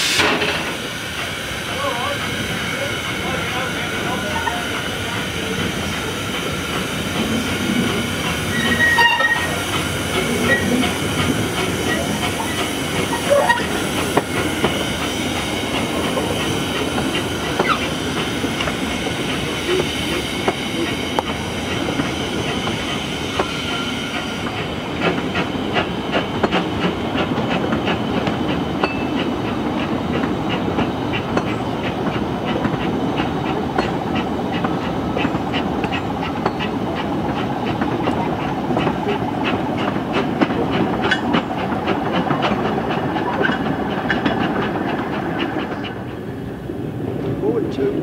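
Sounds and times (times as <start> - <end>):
train running rumble: 0.0 - 48.0
wheels clacking over rail joints: 3.2 - 46.5
wheel squeal: 8.5 - 9.6, 10.3 - 10.9, 11.7 - 13.9.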